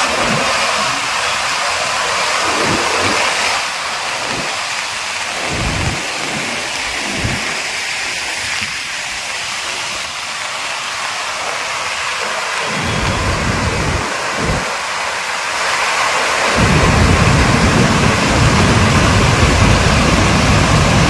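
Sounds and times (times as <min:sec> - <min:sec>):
floodwater rushing in river: 0:00.0 - 0:21.0
low rumbles: 0:05.2 - 0:07.6, 0:12.6 - 0:14.8, 0:16.6 - 0:21.0.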